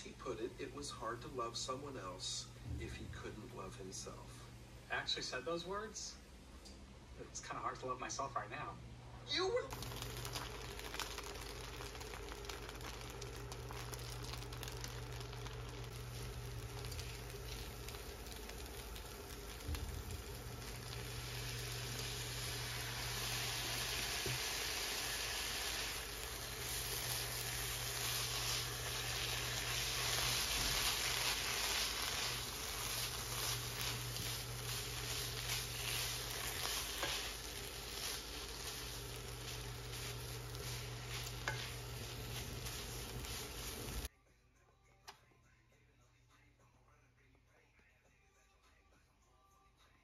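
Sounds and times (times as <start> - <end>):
low hum: 8.7 - 44.1
chicken sizzling in a pan: 9.7 - 44.1.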